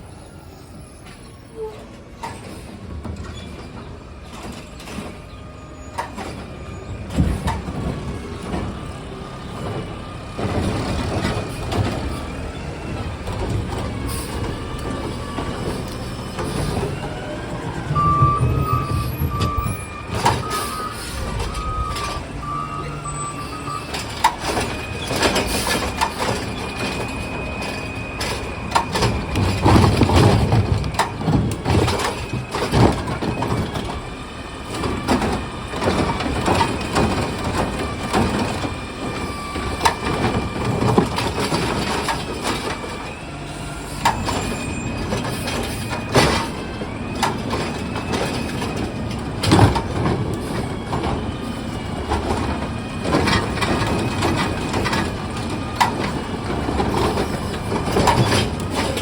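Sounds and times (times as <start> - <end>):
truck high steady whine: 0.0 - 59.0
truck reversing beeps: 0.0 - 59.0
clanks and bangs: 13.2 - 34.0, 52.0 - 59.0.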